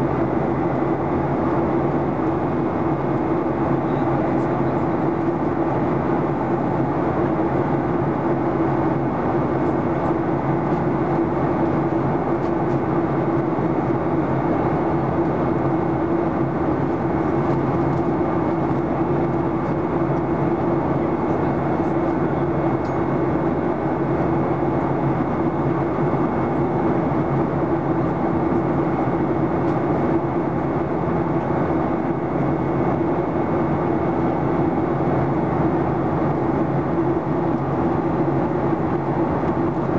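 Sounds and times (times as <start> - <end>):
jet engine drone: 0.0 - 39.9
steady low hum: 0.0 - 39.9.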